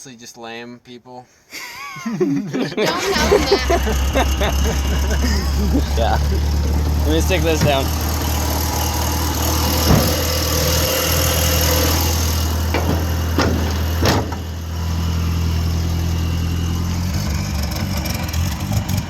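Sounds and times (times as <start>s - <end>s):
vehicle engine idling: 2.9s - 19.0s
sharp knocks: 9.7s - 14.6s.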